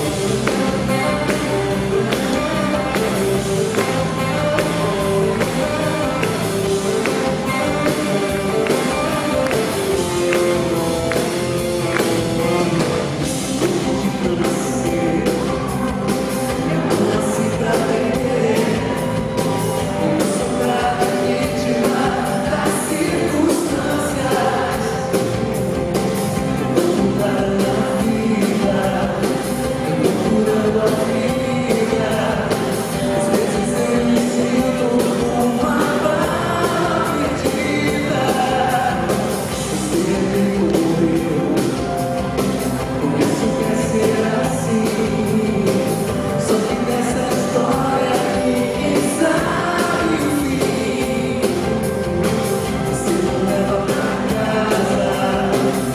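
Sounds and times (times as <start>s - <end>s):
lead vocal singing: 0.0s - 55.9s
live pop-rock band: 0.0s - 55.9s
steady drums: 0.0s - 55.9s
crowd singing along: 43.0s - 55.9s.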